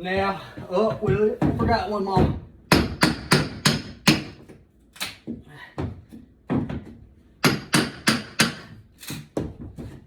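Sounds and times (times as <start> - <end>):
hammering on wooden trim: 1.4 - 4.5, 7.4 - 8.8.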